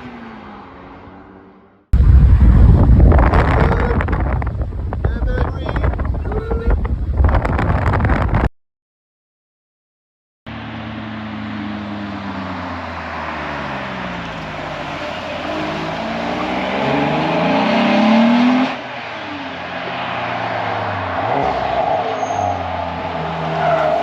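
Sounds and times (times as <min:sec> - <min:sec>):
car engine accelerating: 0:10.5 - 0:24.0.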